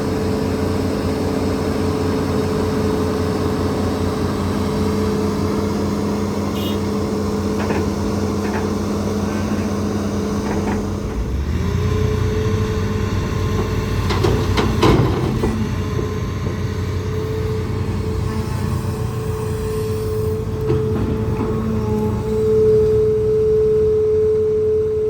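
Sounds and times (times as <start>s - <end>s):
excavator engine and hydraulics whine: 0.0s - 25.0s
sharp knocks and clatter: 13.6s - 16.8s.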